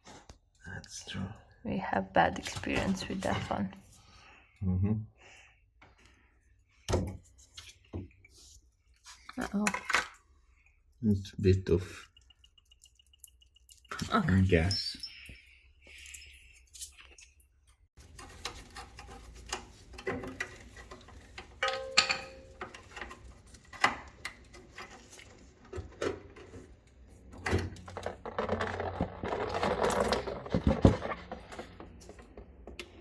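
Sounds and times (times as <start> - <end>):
metal scraping and rattling: 18.0 - 32.5
tools clicking and knocking: 18.1 - 26.5.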